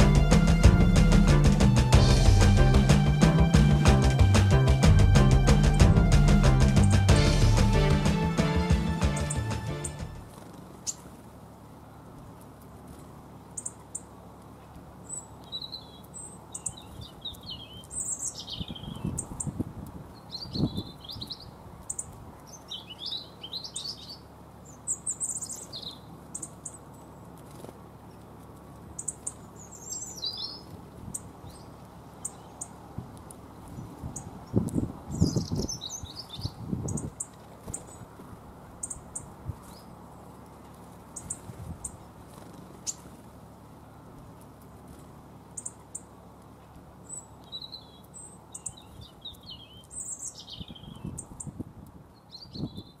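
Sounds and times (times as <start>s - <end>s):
low thumps: 0.0s - 10.3s
songbirds chirping: 0.0s - 53.0s.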